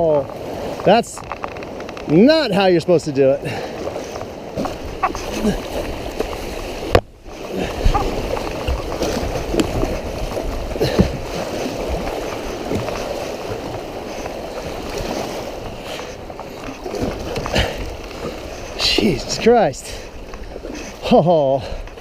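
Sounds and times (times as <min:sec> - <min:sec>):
paddle strokes: 0:00.0 - 0:22.0
water splashing: 0:00.0 - 0:22.0
river rapids rushing: 0:02.2 - 0:19.6.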